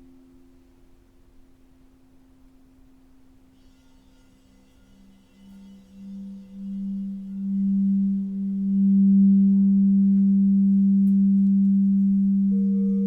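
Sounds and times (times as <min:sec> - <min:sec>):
singing bowl hum: 0:00.0 - 0:13.0
higher overtone: 0:07.2 - 0:13.0.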